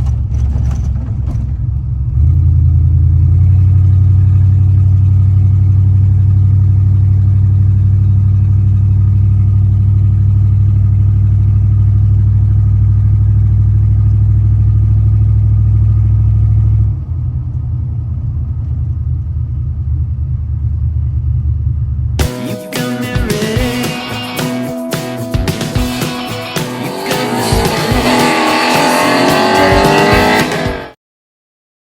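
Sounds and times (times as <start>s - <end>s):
car engine idling: 0.0s - 30.8s.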